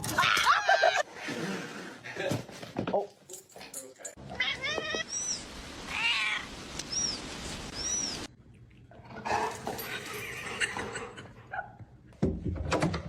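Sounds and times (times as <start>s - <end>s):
cat meowing: 4.3s - 5.1s.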